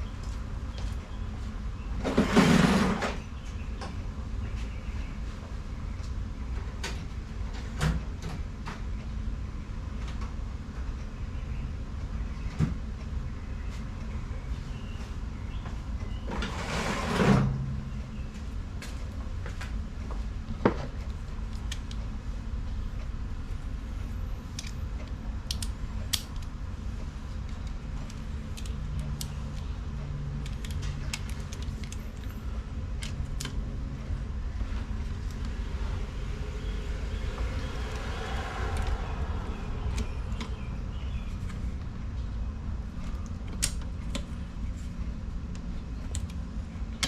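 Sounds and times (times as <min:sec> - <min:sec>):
steady low rumble: 0:17.5 - 0:47.0.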